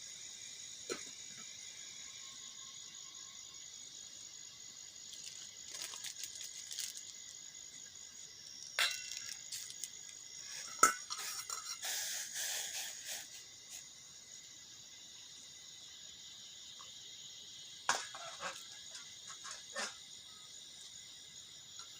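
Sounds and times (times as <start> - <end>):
crickets chirring: 0.0 - 21.9
rustling: 5.1 - 7.2.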